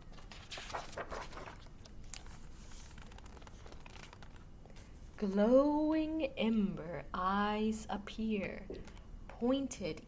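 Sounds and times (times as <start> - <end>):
book pages turning: 0.0 - 4.9.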